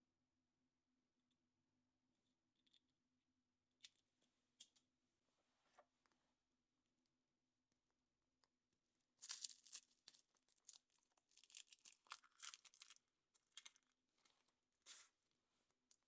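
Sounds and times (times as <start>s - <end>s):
foil wrapper crinkling and tearing: 9.2s - 13.8s.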